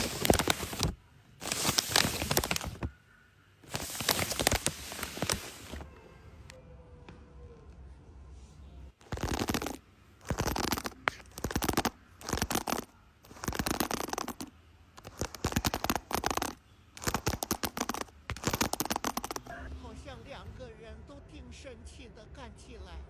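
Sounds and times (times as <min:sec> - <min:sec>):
hand stroking cat fur: 0:00.0 - 0:02.9, 0:03.6 - 0:05.8, 0:09.1 - 0:14.4, 0:15.0 - 0:19.5.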